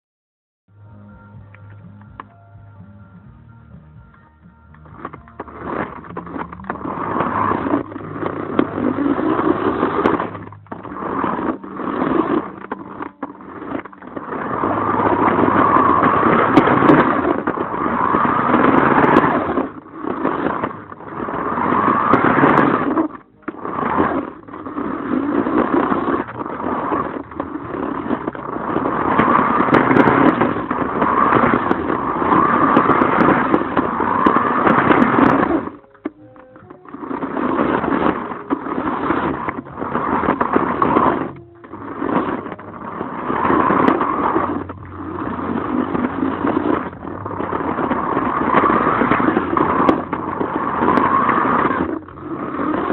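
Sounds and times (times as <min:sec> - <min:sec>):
rc car motor whine: 0:04.7 - 0:52.9
tyre scrape: 0:04.7 - 0:52.9.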